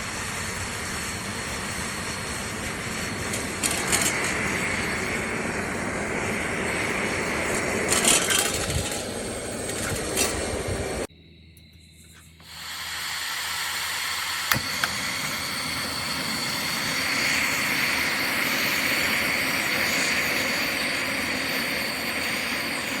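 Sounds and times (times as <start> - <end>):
gas burner hissing: 0.0 - 11.1, 12.0 - 23.0.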